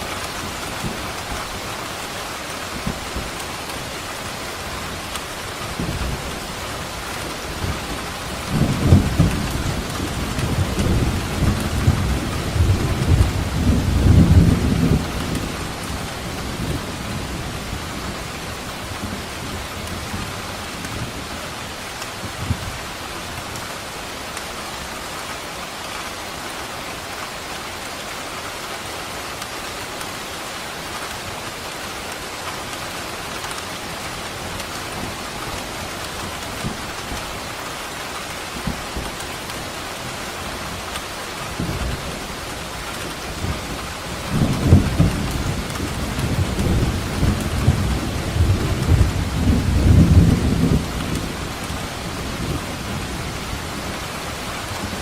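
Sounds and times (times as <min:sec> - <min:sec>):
heavy rain falling: 0:00.0 - 0:55.0
thunder rumbling: 0:05.7 - 0:20.3, 0:41.4 - 0:55.0.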